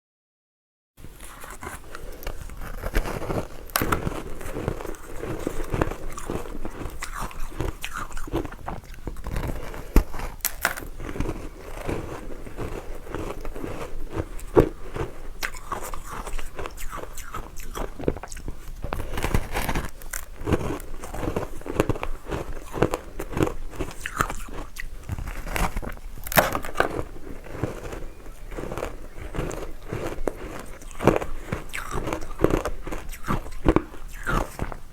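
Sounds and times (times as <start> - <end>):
chewing crunchy ice: 1.0 - 34.9.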